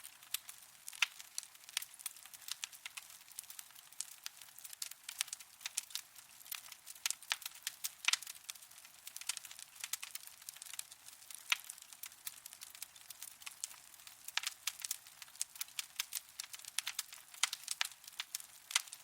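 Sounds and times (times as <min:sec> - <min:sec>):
faint hiss: 0:00.0 - 0:05.4
wood fire crackling and popping: 0:00.0 - 0:19.0.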